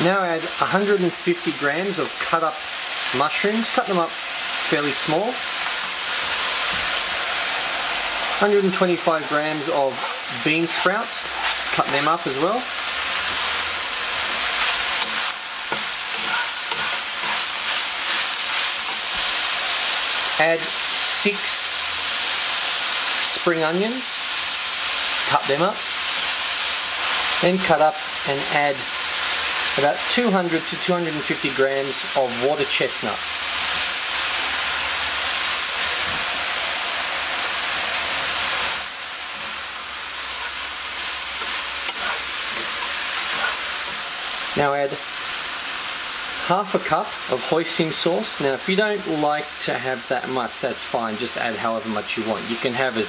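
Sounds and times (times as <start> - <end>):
food sizzling in a frying pan: 0.0 - 53.0
spatula scraping and knocking pan: 8.5 - 19.6, 39.3 - 44.2.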